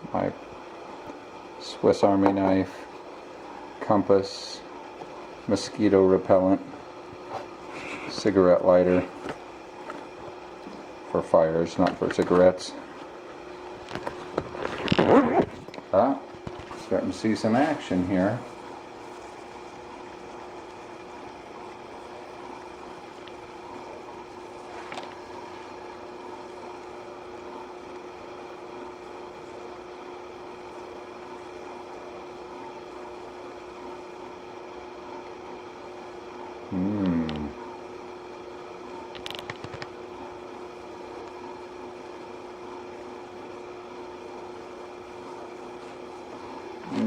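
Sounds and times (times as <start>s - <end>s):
stove flame burning: 0.0s - 47.0s
water simmering: 18.5s - 36.7s.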